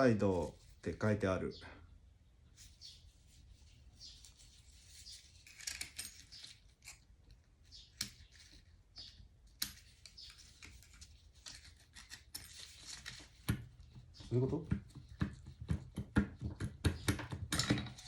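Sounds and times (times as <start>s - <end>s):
small metal parts clicking: 5.1s - 8.6s, 9.5s - 13.3s.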